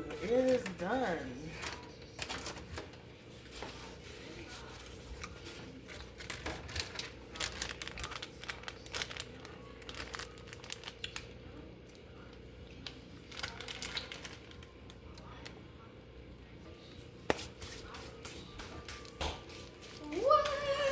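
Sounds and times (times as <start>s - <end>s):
crinkling and crackling: 1.5s - 15.6s.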